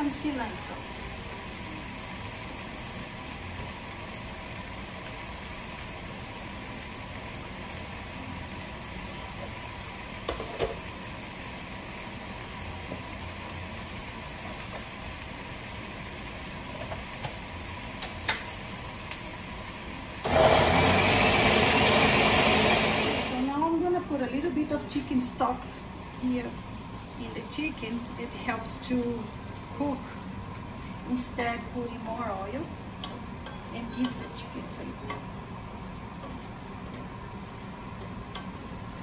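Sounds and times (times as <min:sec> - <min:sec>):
pot sizzling: 0:00.0 - 0:39.0
electric blender running: 0:20.2 - 0:23.6.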